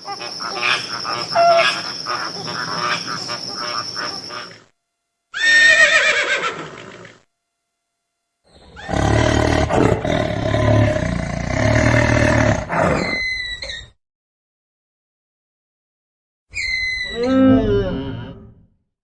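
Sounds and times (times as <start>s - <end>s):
high falling animal call: 0.0s - 4.6s, 16.6s - 18.3s
animal roaring: 8.6s - 13.2s, 17.1s - 18.6s.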